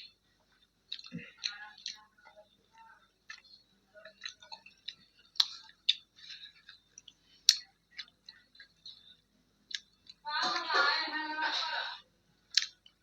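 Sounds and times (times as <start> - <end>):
person chewing with lip smacks: 0.5 - 2.0, 3.2 - 10.2, 12.5 - 13.0.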